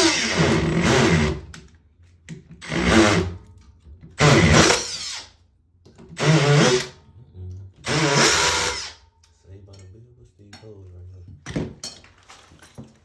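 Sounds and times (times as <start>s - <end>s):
hammer drill bursts: 0.0s - 1.4s, 7.9s - 9.0s.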